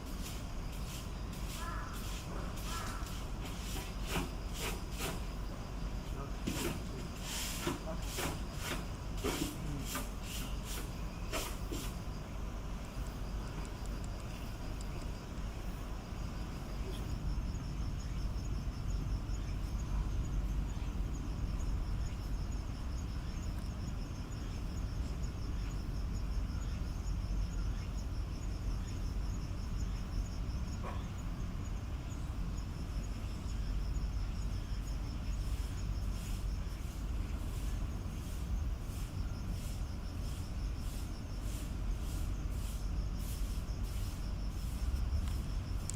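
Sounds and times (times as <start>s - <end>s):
insect trilling: 0.0s - 45.9s
low outdoor rumble: 10.9s - 45.9s.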